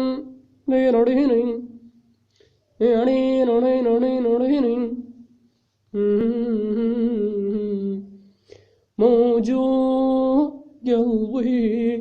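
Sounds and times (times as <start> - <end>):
man humming a wavering melody: 6.0 - 8.1.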